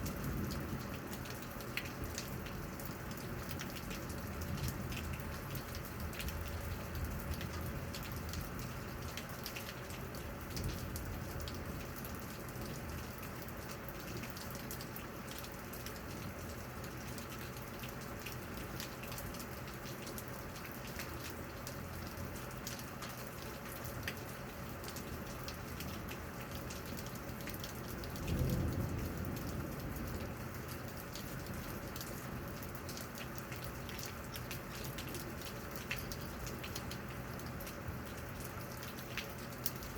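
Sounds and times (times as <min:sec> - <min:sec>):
low rumble of thunder: 0:00.0 - 0:03.6, 0:04.2 - 0:09.1, 0:10.5 - 0:13.2, 0:27.8 - 0:32.8
raindrops ticking close by: 0:00.0 - 0:39.9
steady rain falling: 0:00.0 - 0:39.9.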